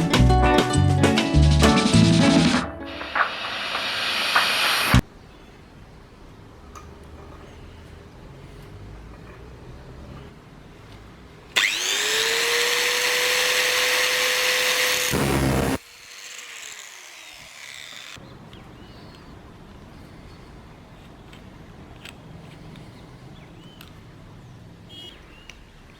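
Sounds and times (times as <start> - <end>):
power tool motor whining: 11.6 - 18.2.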